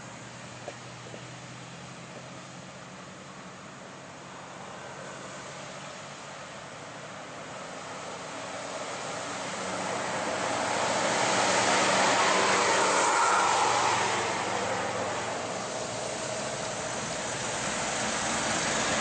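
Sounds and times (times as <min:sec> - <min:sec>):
diesel truck engine labouring: 0:00.0 - 0:19.0
tyre and engine noise: 0:00.0 - 0:19.0
motorcycles passing: 0:08.1 - 0:19.0.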